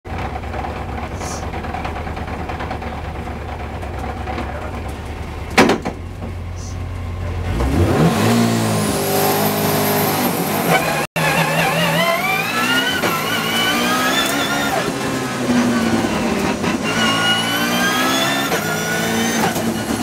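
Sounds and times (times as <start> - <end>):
race car engine idling: 0.1 - 7.8
engine revving high: 6.6 - 20.0.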